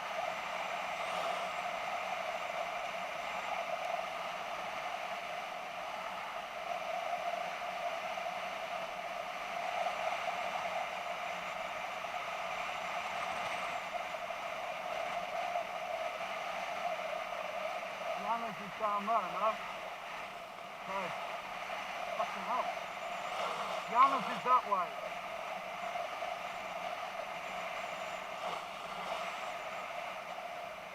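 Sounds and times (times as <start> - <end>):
wind and road noise: 0.0 - 30.9.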